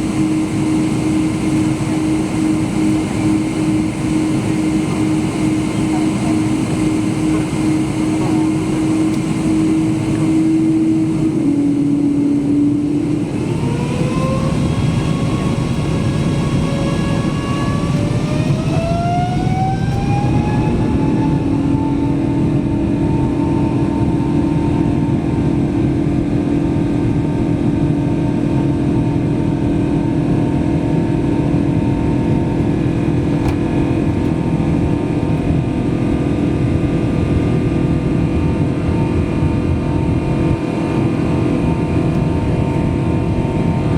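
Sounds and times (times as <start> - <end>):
jet engines spooling up: 0.0 - 26.5.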